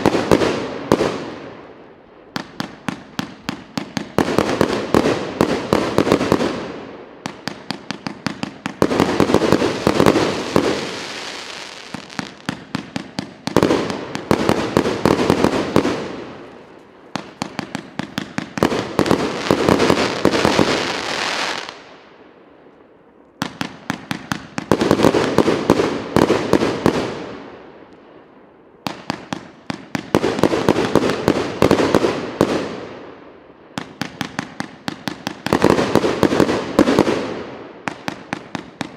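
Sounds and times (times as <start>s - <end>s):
firework bursts: 2.3s - 21.9s.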